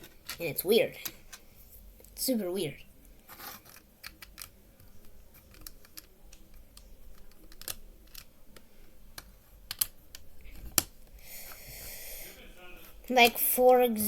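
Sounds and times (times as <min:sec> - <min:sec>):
plastic toy bricks clicking: 0:03.7 - 0:04.6, 0:05.4 - 0:10.9.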